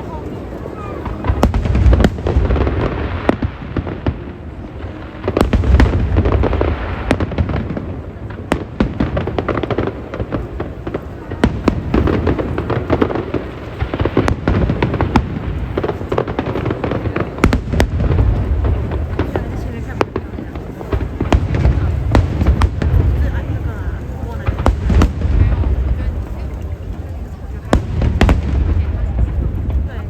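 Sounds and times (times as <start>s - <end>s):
fireworks booming bursts: 0.0s - 30.0s
fireworks cracks and pops: 0.0s - 30.0s.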